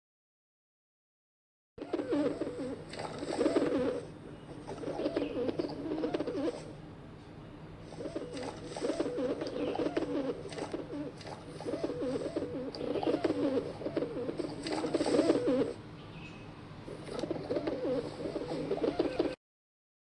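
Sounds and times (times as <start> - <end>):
pigeon cooing: 1.8 - 6.8, 7.8 - 15.9, 16.9 - 19.4.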